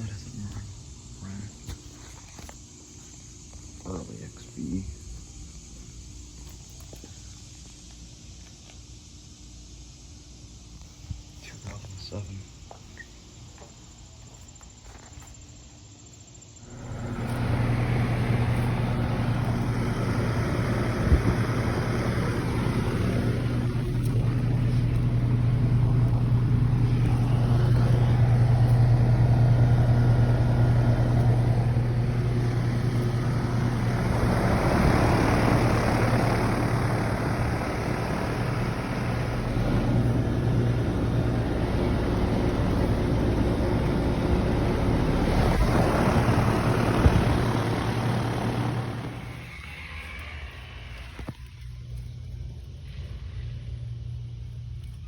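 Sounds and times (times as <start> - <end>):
compressor hum: 0.0 - 7.9, 16.2 - 55.0
fan air rushing: 16.4 - 55.0.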